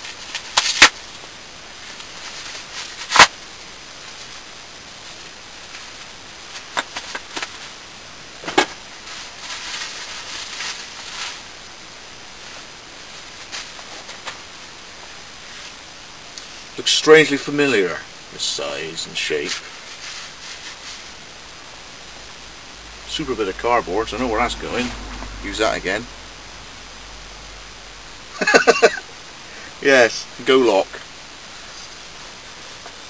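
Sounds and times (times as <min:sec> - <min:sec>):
plastic crinkling and rustling: 0:01.8 - 0:03.3, 0:08.5 - 0:11.6, 0:12.4 - 0:16.7, 0:19.4 - 0:22.5.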